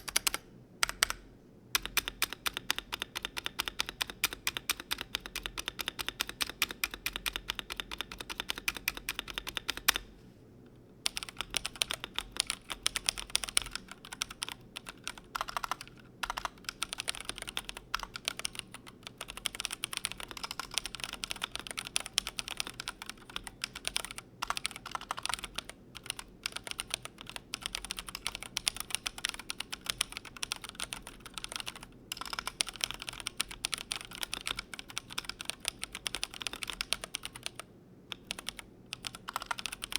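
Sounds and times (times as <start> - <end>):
mechanical keyboard typing: 0.0 - 1.2, 1.8 - 10.1, 11.0 - 39.9.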